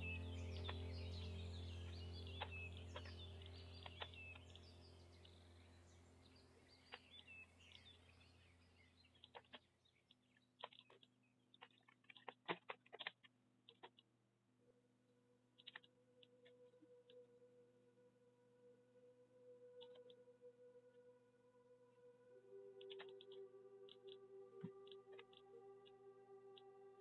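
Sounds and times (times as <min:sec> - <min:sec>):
low steady hum: 0:00.0 - 0:10.5
faint clicks: 0:22.8 - 0:26.7.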